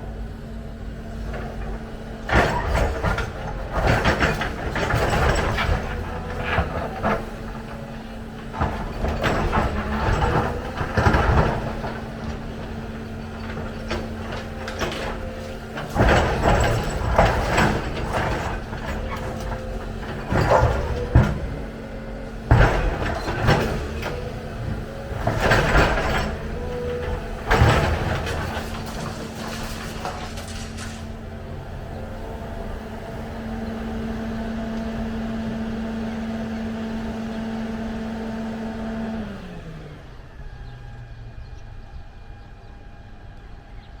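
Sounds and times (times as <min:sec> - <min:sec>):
excavator diesel engine running: 0:00.0 - 0:44.0
loud knocks and clanks: 0:01.3 - 0:31.3.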